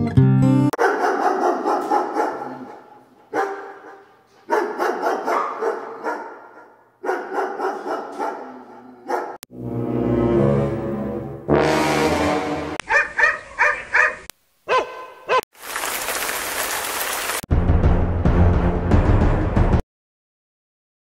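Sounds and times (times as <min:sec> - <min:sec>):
guitar music: 0:00.0 - 0:00.8
dogs barking: 0:00.8 - 0:09.4, 0:12.8 - 0:15.4.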